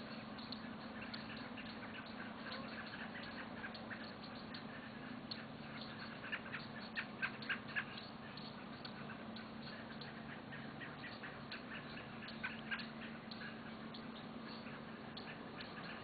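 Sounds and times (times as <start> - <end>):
birds chirping: 0.0 - 16.0
faint low hum: 0.0 - 16.0.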